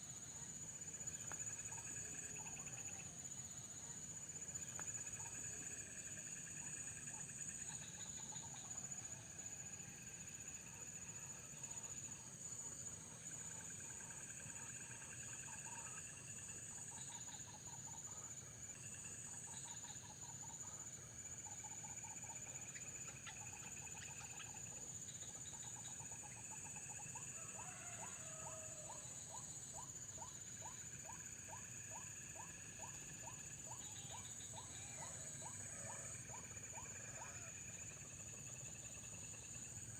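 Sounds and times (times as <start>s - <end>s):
crickets and insects chirring: 0.0s - 39.9s.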